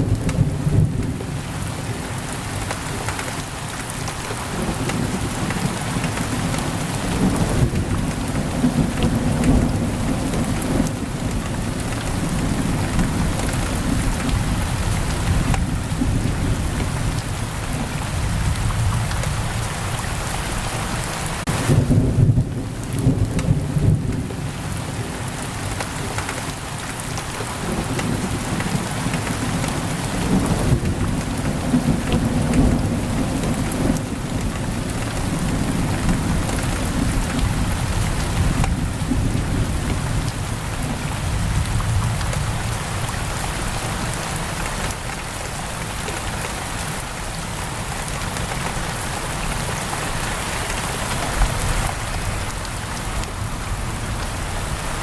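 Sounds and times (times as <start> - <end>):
heavy rain on a window: 0.0 - 55.0
thunder rumbling: 4.3 - 19.8, 27.5 - 44.2.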